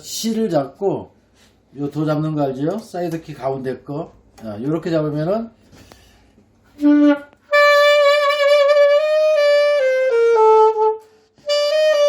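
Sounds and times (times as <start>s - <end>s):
solo saxophone notes: 6.7s - 12.0s.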